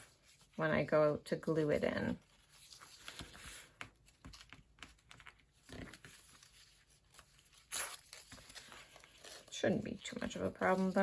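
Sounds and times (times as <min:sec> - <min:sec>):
paper being peeled and scraped: 0:05.7 - 0:11.0.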